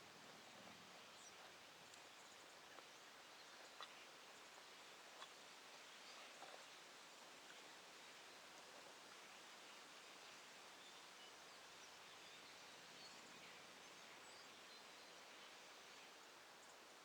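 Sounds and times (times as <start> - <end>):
faint outdoor background hiss: 6.8 - 17.0.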